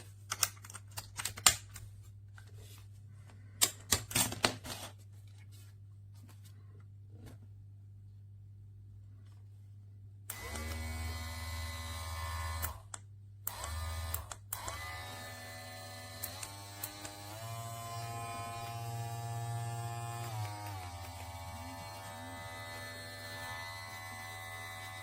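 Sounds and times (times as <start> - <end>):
small electric motor whining: 10.3 - 12.8, 13.5 - 25.0.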